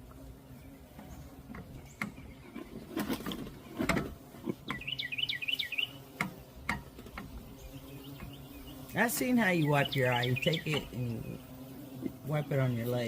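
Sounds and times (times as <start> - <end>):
songbird warbling chirps: 4.6 - 6.5, 7.5 - 11.5.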